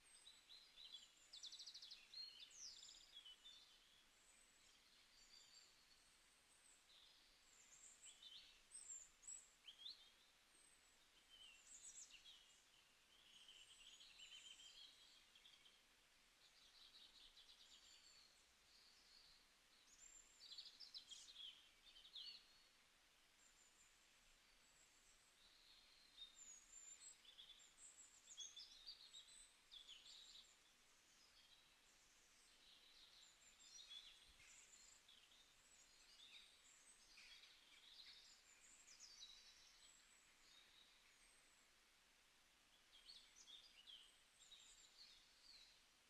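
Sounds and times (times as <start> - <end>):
low background hiss: 0.0 - 46.0
birds chirping and trilling: 24.6 - 41.6.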